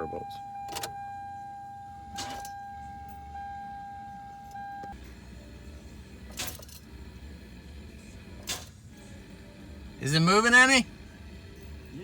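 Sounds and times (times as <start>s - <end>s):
electronic warning tone: 0.0s - 5.0s.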